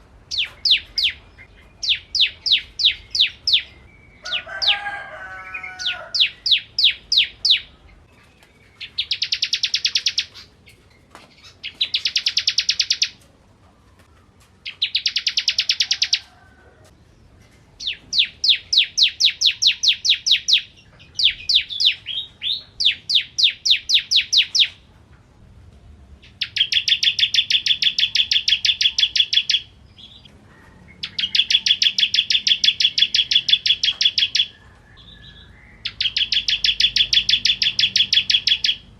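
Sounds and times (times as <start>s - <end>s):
bird singing rapid high notes: 0.3s - 4.5s, 31.0s - 34.6s, 35.2s - 38.9s.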